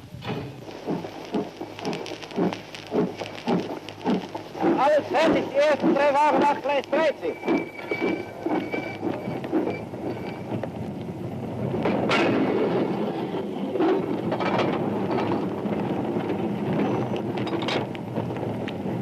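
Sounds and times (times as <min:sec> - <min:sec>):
freight wagons rolling rumble: 0:00.0 - 0:19.0
sharp wagon knocks: 0:00.2 - 0:10.7.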